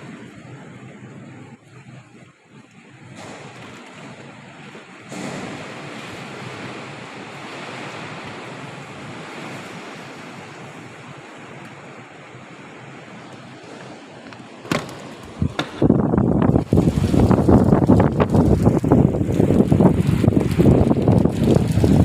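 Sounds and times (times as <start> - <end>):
storm wind blowing: 3.0 - 22.0
sharp knock: 14.7 - 15.8.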